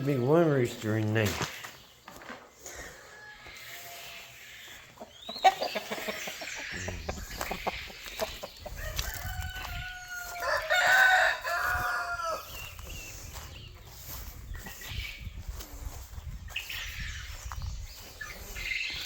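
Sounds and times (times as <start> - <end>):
chickens clucking: 0.0 - 19.0
rooster crowing: 8.7 - 12.6.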